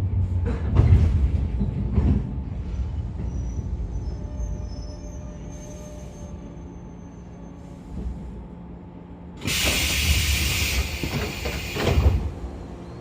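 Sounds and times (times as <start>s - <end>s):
electric train humming: 2.5s - 13.0s
compressed air hiss of doors: 9.4s - 12.2s.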